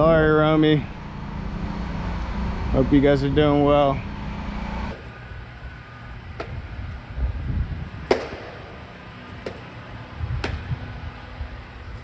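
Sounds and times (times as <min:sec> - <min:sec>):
low rumbling outdoor noise: 0:00.0 - 0:12.0
sharp knocks: 0:06.4 - 0:06.6, 0:08.1 - 0:08.8, 0:09.4 - 0:09.7, 0:10.4 - 0:10.7.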